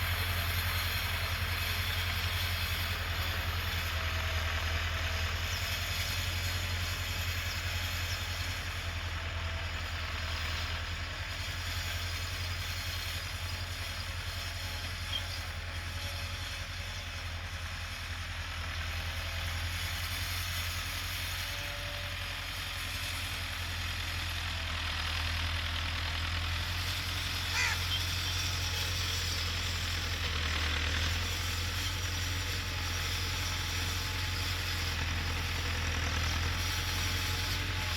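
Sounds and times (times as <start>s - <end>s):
tractor engine humming: 0.0s - 37.9s.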